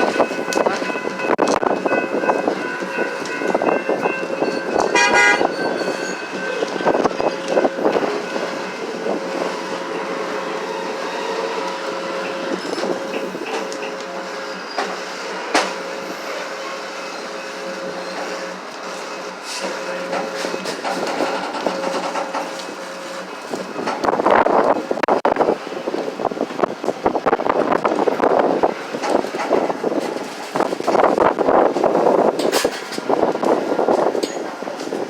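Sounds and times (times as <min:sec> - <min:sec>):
wheels squealing: 0:00.0 - 0:24.8
train rolling on rails: 0:00.0 - 0:35.0
wheels clacking over rail joints: 0:00.0 - 0:35.0
short train horn toot: 0:04.9 - 0:05.6.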